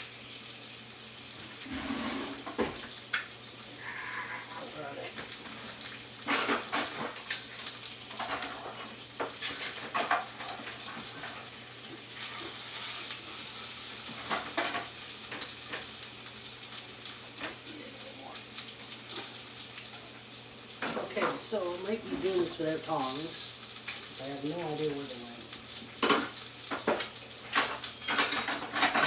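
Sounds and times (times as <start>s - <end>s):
chicken sizzling in a pan: 0.0s - 29.0s
utensils and cookware clattering: 1.3s - 16.0s, 20.7s - 29.0s.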